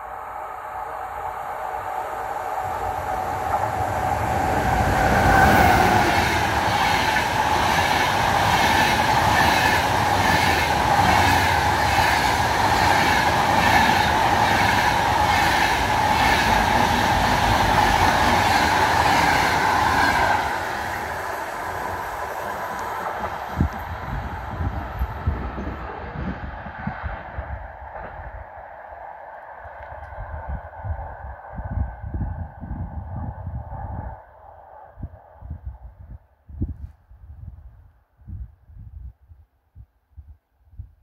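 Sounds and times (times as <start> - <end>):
electric locomotive passing: 0.0 - 34.9
train wheels clickety-clack: 5.1 - 20.6.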